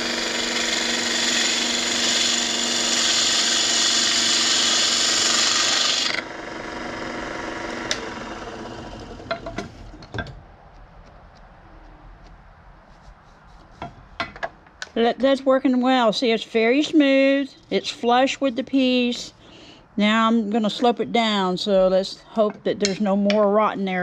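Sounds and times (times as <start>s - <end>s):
power tool rasping wood: 0.0s - 9.9s.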